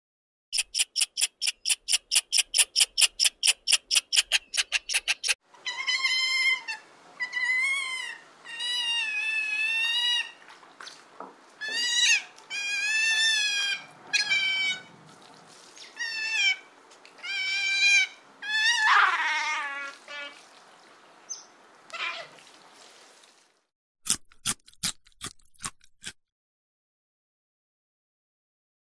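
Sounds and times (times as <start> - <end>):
squirrel chattering: 0.6 - 5.4
sea otters squealing: 0.6 - 10.4, 11.6 - 14.9, 15.8 - 20.4.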